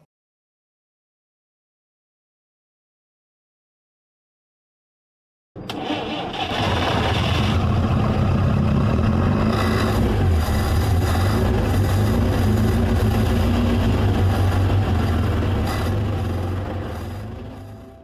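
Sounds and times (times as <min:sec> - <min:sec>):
car engine starting and running: 0:05.6 - 0:18.0.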